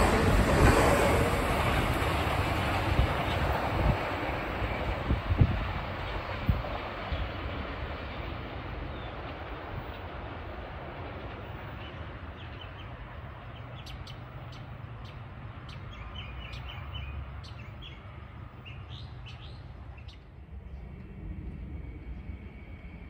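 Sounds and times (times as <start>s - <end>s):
train rumbling: 0.0s - 23.0s
small birds chirping: 11.2s - 20.3s.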